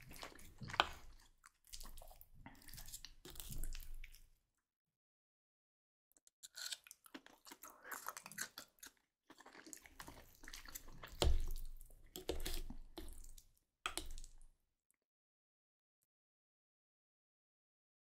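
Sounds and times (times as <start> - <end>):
person chewing and eating: 0.0 - 4.4, 6.4 - 14.5.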